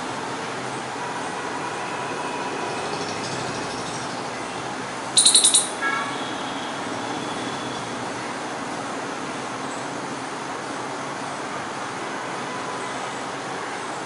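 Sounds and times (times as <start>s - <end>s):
traffic noise: 0.0s - 14.0s
squirrel chirping: 5.2s - 5.8s
squirrel low call: 5.2s - 5.8s.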